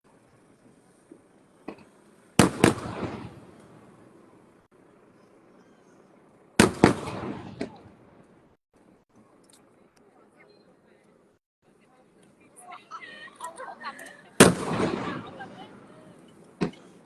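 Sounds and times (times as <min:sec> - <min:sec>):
firework crackle: 0:00.1 - 0:09.7, 0:14.1 - 0:17.0
firework shells bursting: 0:00.4 - 0:04.6, 0:06.3 - 0:08.4, 0:14.4 - 0:17.0
small firework pop: 0:16.3 - 0:17.0.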